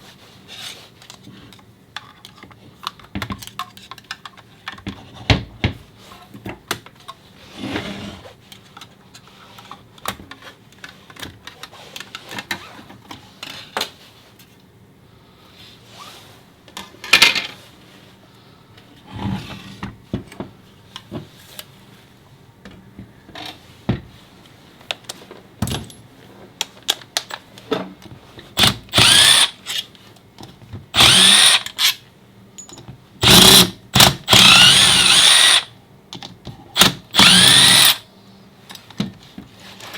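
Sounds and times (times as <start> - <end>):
cordless drill motor bursts: 28.6 - 29.8, 31.0 - 32.0, 33.2 - 35.7, 36.8 - 38.0
metal tools clicking and knocking: 32.6 - 32.9.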